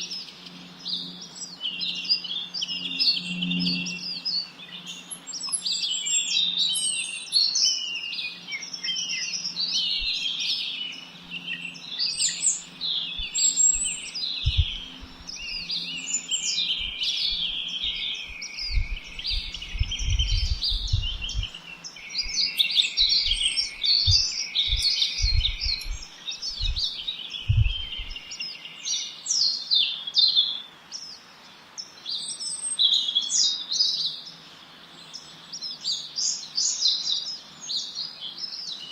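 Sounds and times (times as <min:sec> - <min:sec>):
songbirds chirping and trilling: 0:00.0 - 0:38.9
low rumbles: 0:13.2 - 0:15.3, 0:18.6 - 0:21.6, 0:24.0 - 0:28.2.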